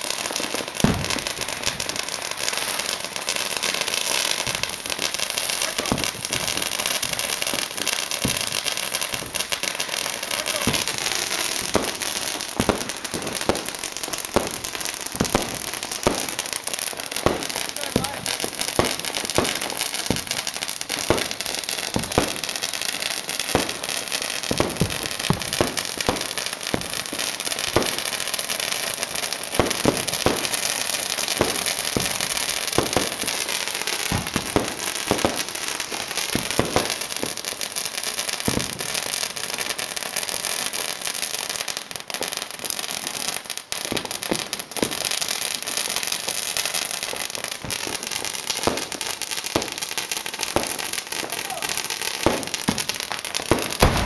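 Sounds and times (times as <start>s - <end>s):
dense firework crackle: 0.0s - 54.0s
sharp firework bangs: 0.8s - 1.8s, 8.2s - 22.5s, 31.3s - 35.5s, 38.5s - 38.8s, 50.5s - 54.0s.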